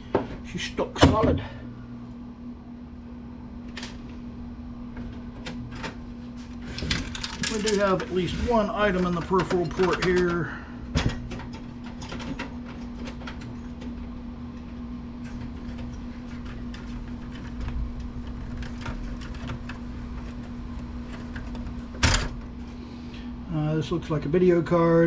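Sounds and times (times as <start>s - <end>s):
steady low hum: 0.0s - 25.0s
clicks and scrapes of computer parts: 5.0s - 10.4s, 15.2s - 22.2s.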